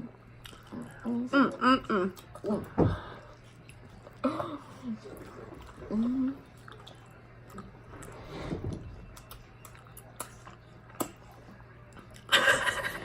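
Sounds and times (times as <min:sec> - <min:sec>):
faint steady hum: 0:00.0 - 0:13.0
chewing clicks and smacks: 0:09.1 - 0:12.3.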